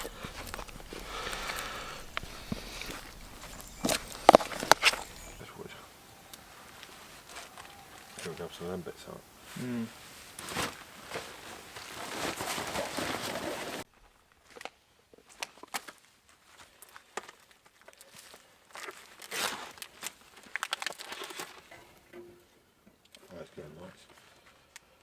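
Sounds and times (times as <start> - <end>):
dense rustling hiss: 0.0 - 13.8
crinkling and crackling of handling: 0.0 - 24.9.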